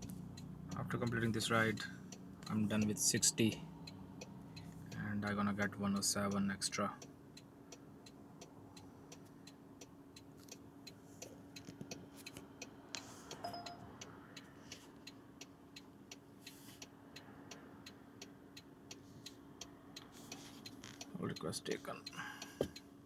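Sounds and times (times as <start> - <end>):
turn signal ticking: 0.0 - 23.0
short electronic beep: 13.4 - 13.9.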